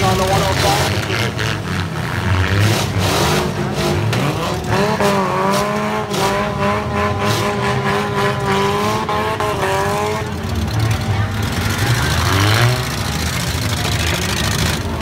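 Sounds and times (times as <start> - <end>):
car engine revving hard: 0.0 - 15.0
rumble of other cars running: 0.0 - 15.0.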